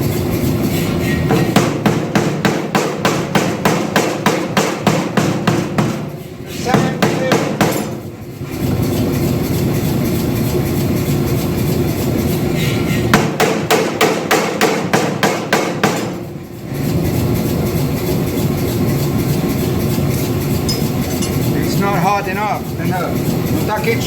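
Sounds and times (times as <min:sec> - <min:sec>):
machinery running: 0:00.0 - 0:24.0
power hammer striking steel bar: 0:00.8 - 0:08.1, 0:13.1 - 0:16.3.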